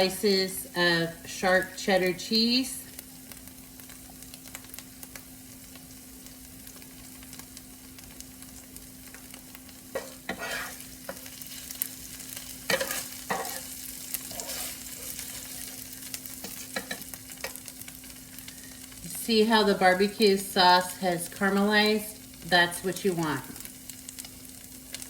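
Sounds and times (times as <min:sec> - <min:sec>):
chicken sizzling on a griddle: 0:00.0 - 0:25.0
utensil scraping and tapping griddle: 0:09.9 - 0:11.4, 0:12.7 - 0:17.6.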